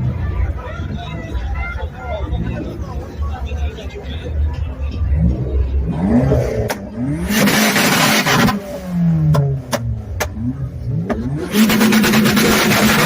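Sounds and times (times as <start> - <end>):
car engine revving: 4.5 - 13.0
sharp exhaust pops: 9.3 - 10.4.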